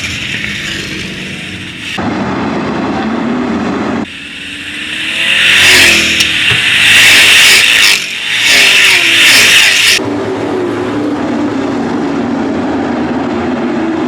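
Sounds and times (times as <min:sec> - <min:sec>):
race truck engines running: 0:00.0 - 0:14.0
truck engine revving: 0:00.0 - 0:14.0.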